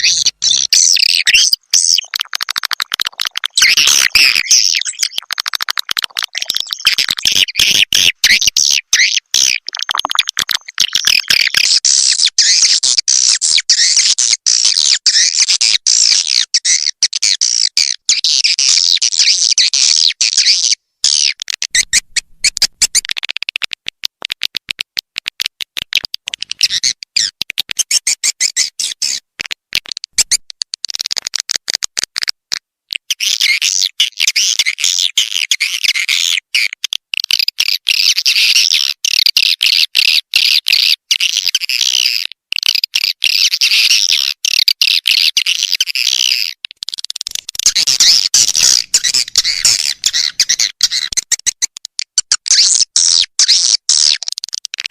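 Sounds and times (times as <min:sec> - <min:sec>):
swiftlets twittering chirps: 0:47.3 - 0:51.2.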